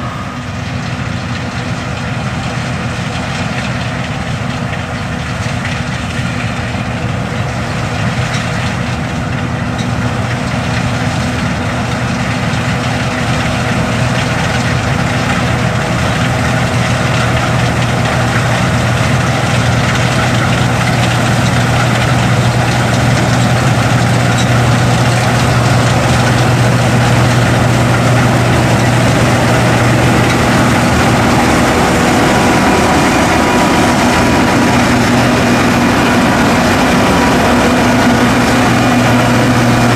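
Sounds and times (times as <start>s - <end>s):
combine harvester droning: 0.0s - 39.9s.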